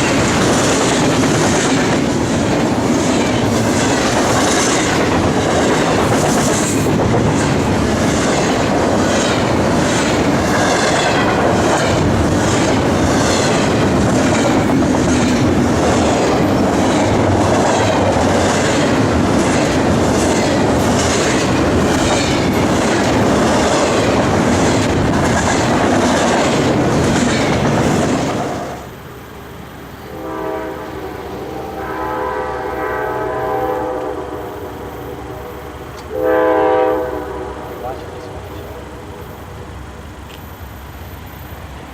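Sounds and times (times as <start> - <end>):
train wheels clicking over rails: 0.0 - 29.8
locomotive horn blasts: 30.1 - 38.8.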